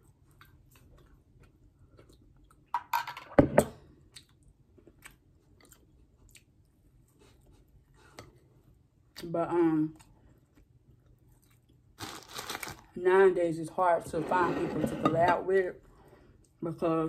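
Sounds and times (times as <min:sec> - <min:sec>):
soft chewing: 0:00.0 - 0:02.7, 0:03.8 - 0:12.9, 0:15.8 - 0:16.6.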